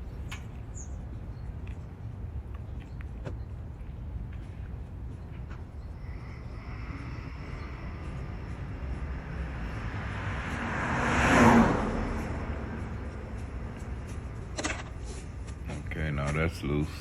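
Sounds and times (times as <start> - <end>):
vehicle passing by: 5.9 - 15.6.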